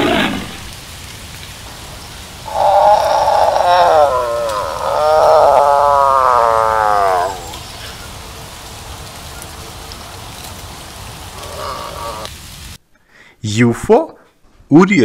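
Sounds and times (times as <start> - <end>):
steady hiss: 0.0 - 14.6
tiger calling: 2.4 - 8.2.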